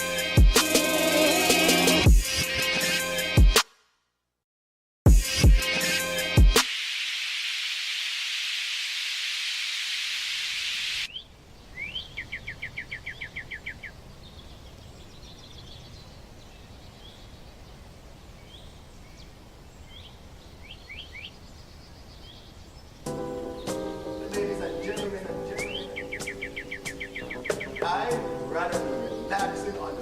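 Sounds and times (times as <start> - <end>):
loud hiss: 5.1 - 11.1
songbirds chirping: 11.1 - 30.0.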